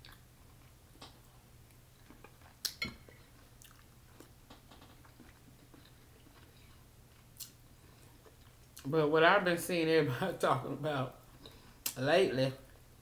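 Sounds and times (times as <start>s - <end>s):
person chewing: 0.0s - 8.9s.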